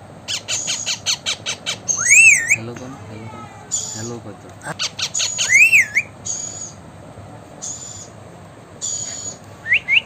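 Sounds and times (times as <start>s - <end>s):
parrot calling: 0.3s - 6.8s, 8.8s - 10.0s.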